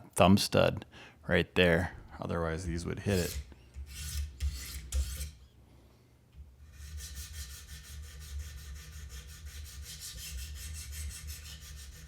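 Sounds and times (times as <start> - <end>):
sharpening stones rubbing knife edge: 3.1 - 5.4.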